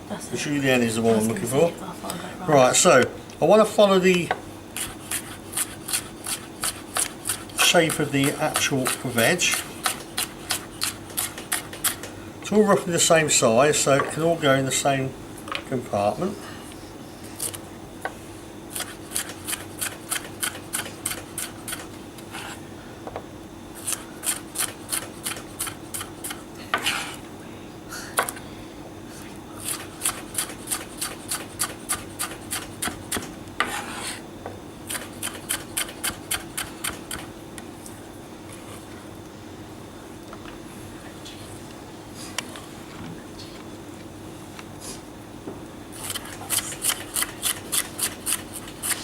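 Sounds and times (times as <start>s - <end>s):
knife cutting on chopping board: 4.8s - 12.1s, 18.7s - 22.6s, 23.8s - 27.2s, 29.6s - 34.2s, 34.9s - 37.3s, 46.0s - 49.0s.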